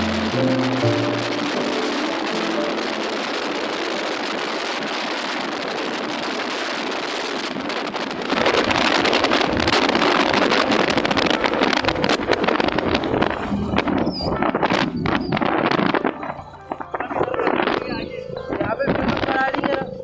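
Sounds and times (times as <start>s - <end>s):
motorcycle engine running: 0.0s - 20.0s
wind buffeting microphone: 0.0s - 20.0s.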